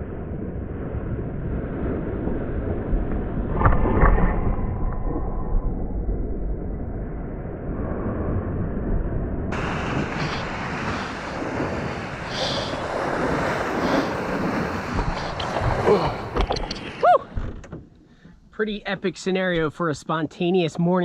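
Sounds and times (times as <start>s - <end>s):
wind buffeting microphone: 0.0s - 17.7s
surf splashing and hissing: 9.5s - 17.0s
water rushing: 9.5s - 17.4s
thump: 16.4s - 18.4s.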